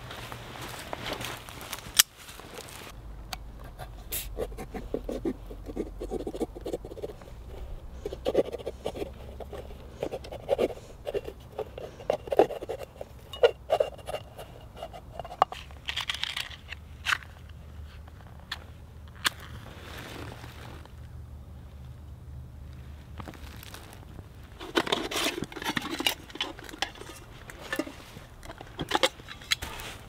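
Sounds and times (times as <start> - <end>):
knife scraping through foil seal: 24.6 - 29.8.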